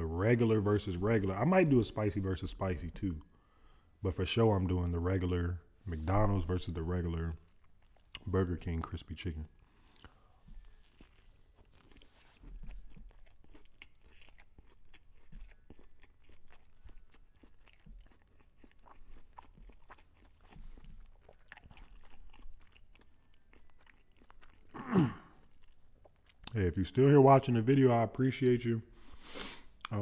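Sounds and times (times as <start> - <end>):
person chewing crunchy food: 6.0 - 9.0, 9.6 - 26.8.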